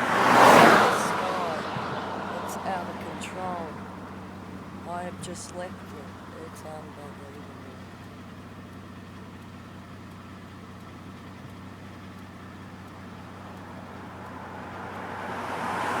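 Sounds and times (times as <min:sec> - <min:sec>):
broad rushing noise: 0:00.0 - 0:06.8
car road noise from inside cabin: 0:00.0 - 0:16.0.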